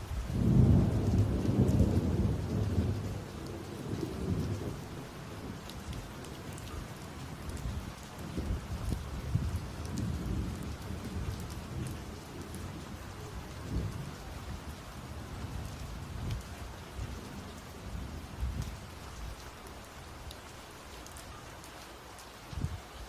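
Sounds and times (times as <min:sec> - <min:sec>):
low thunder rumble: 0:00.0 - 0:19.2
steady rain: 0:00.0 - 0:23.0.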